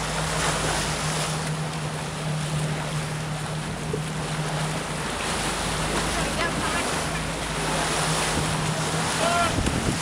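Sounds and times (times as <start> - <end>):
motorboat engine drone: 0.0 - 10.0
water rushing past hull: 0.0 - 10.0
wind buffeting microphone: 8.1 - 10.0.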